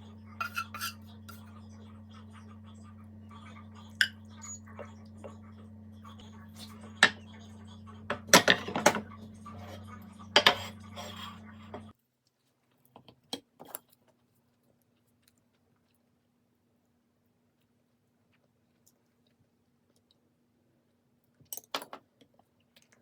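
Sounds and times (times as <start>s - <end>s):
steady low hum: 0.0s - 11.9s
utensils and dishes clinking: 0.3s - 1.6s, 6.5s - 11.9s.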